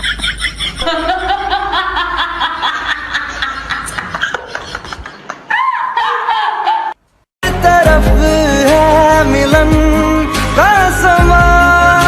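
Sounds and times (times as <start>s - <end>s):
high-pitched giggling: 0.0s - 7.0s.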